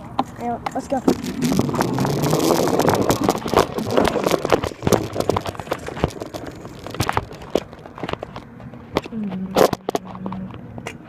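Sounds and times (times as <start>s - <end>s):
dirt bike rattling and knocking: 0.8s - 9.0s.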